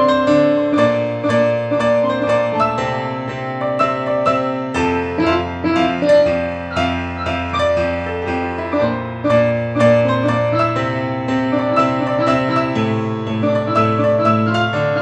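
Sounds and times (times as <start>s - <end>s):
keyboard melody: 0.0s - 15.0s
held bass notes: 4.8s - 7.6s.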